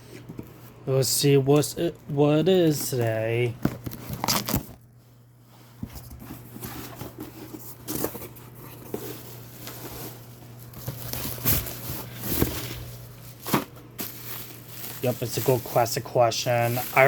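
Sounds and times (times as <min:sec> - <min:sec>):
packaging rustling: 0:01.6 - 0:04.9, 0:06.0 - 0:17.0.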